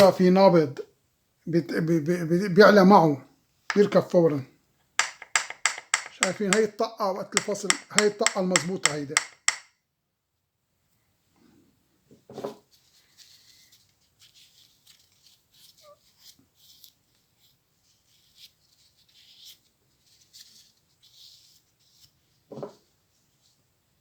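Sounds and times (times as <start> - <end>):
louder knocks: 5.0 - 6.7, 7.4 - 9.6
small metal parts clicking: 5.0 - 6.7.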